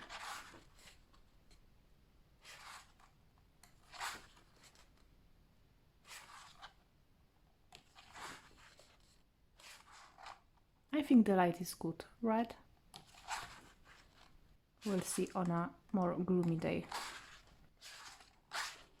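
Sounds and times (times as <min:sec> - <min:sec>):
book pages turning: 0:00.0 - 0:01.2, 0:02.4 - 0:05.1, 0:06.0 - 0:06.9, 0:07.7 - 0:10.7, 0:12.9 - 0:19.0.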